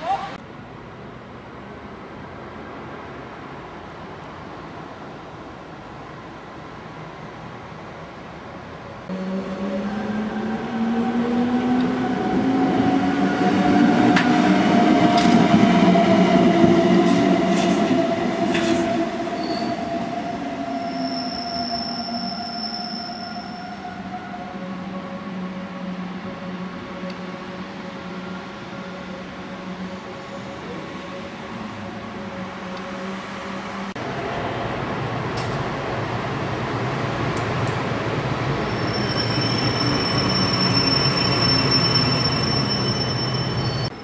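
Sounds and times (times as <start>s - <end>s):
high wheel squeal: 19.4s - 19.9s, 20.7s - 23.8s, 38.6s - 44.0s.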